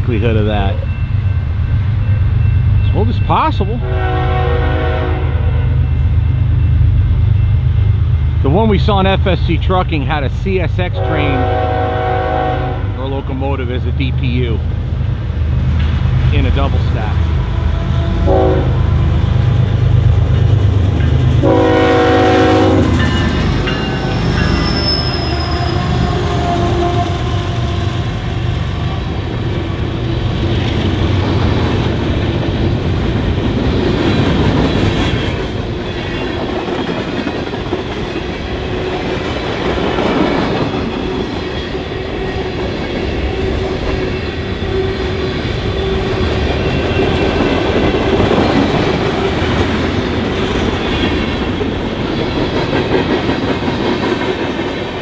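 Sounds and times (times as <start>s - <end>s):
train horn blast: 3.8s - 5.8s, 11.0s - 13.1s, 17.8s - 19.0s, 21.4s - 28.4s.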